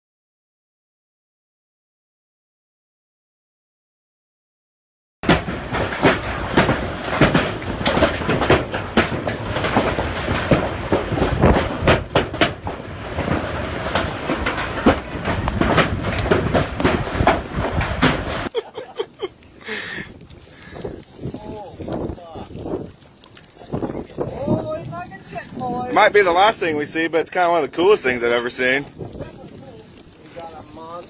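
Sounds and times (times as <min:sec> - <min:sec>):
storm wind roaring: 0:05.2 - 0:18.5, 0:19.4 - 0:27.4, 0:28.0 - 0:30.8
wind knocks and buffets: 0:05.2 - 0:18.5, 0:19.4 - 0:31.0.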